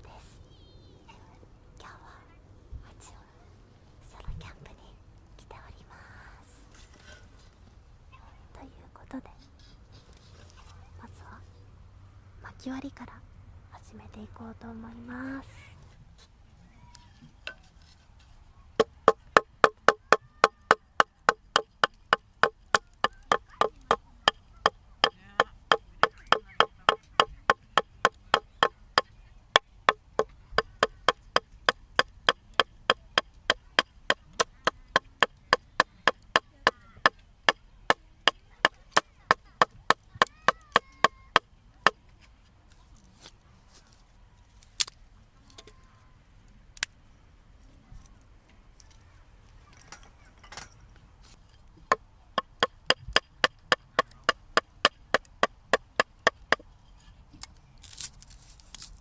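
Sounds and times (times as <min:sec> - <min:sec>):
axe chopping firewood: 0:18.8 - 0:42.0, 0:51.9 - 0:56.7.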